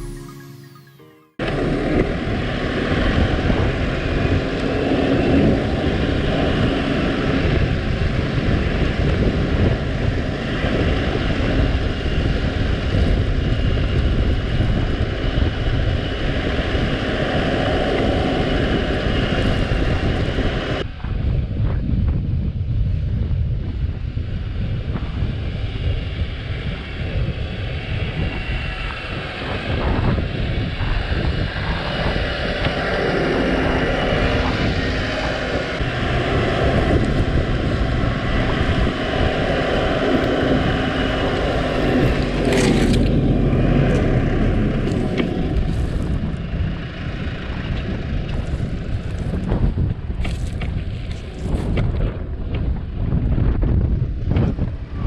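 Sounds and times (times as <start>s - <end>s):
wind rumble on microphone: 1.4s - 55.0s
tractor engine running: 29.4s - 53.5s.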